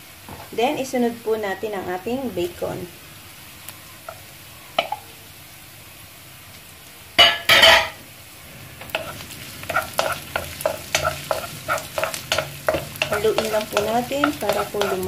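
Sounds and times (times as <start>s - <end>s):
food sizzling in oil: 0.0s - 15.0s
wooden spoon scraping a pan: 8.8s - 15.0s.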